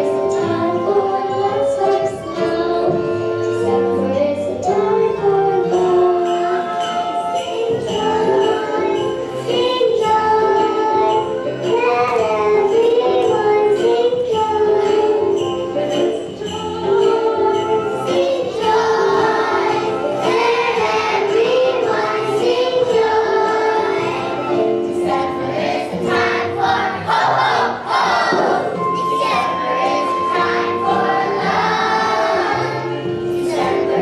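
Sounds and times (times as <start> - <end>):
children's choir singing: 0.0 - 34.0
recorded accompaniment: 0.0 - 34.0
jingle bells shaken: 5.7 - 27.4, 28.6 - 34.0.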